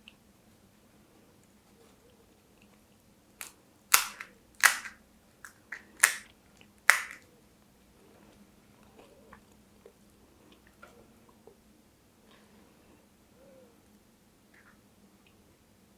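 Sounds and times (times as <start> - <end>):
crunchy food being chewed: 3.9 - 6.2.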